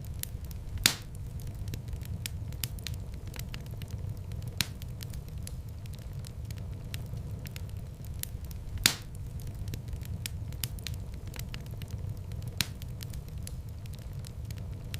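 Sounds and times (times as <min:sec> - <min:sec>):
wood fire crackling: 0:00.0 - 0:14.9
loud fire pop: 0:00.8 - 0:01.2, 0:08.8 - 0:09.2.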